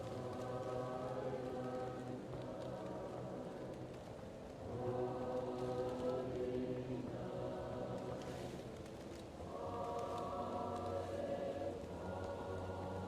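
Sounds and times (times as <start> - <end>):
fireplace crackles: 0.0 - 13.0
muffled choir singing: 0.0 - 13.0.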